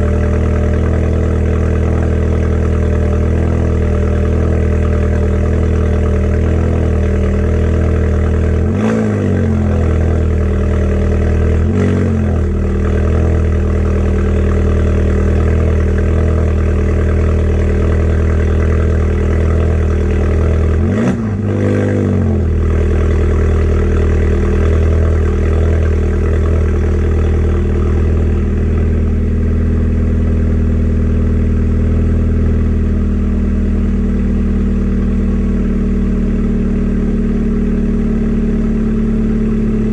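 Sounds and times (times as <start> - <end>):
car engine idling: 0.0 - 39.9
engine throttle blips: 0.0 - 39.9.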